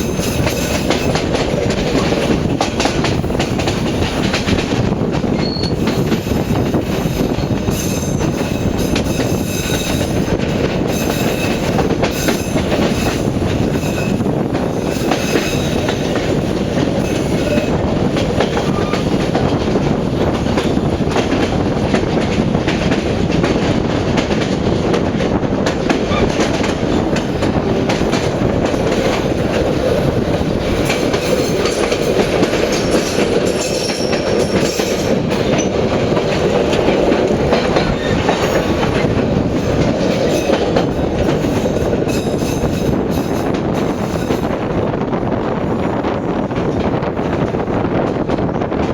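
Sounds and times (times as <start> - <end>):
rail joint clicks: 0.0 - 48.9
train wheels rumbling on track: 0.0 - 48.9
faint high wheel squeals: 5.4 - 5.9.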